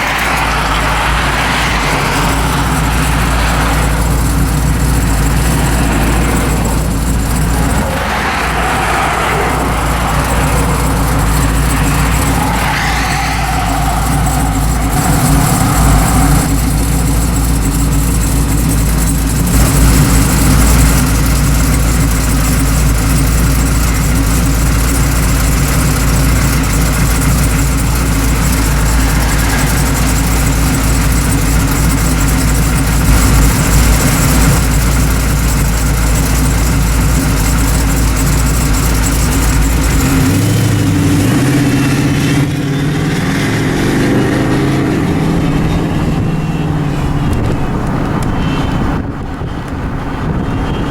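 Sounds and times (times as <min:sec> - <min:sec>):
car engine running: 0:00.0 - 0:50.9.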